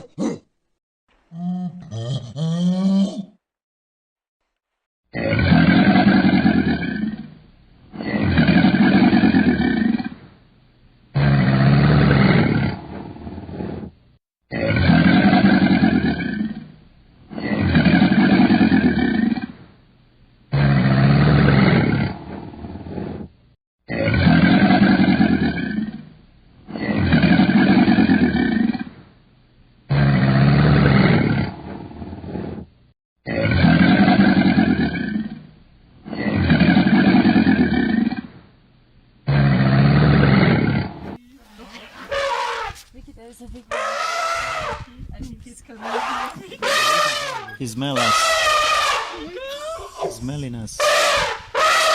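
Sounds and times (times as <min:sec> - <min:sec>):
large animal roaring: 0:05.1 - 0:10.2, 0:11.2 - 0:13.9, 0:14.5 - 0:16.7, 0:17.3 - 0:19.6, 0:20.5 - 0:23.3, 0:23.9 - 0:26.1, 0:26.7 - 0:29.0, 0:29.9 - 0:32.7, 0:33.3 - 0:38.4, 0:39.3 - 0:41.2, 0:43.7 - 0:44.9, 0:45.8 - 0:50.2, 0:50.8 - 0:51.9.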